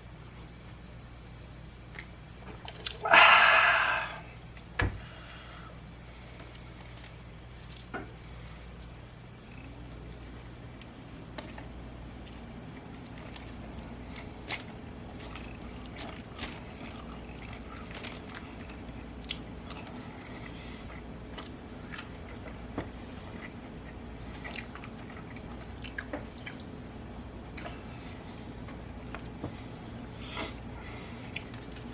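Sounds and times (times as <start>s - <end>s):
person chewing food: 8.8s - 26.7s, 27.5s - 31.9s.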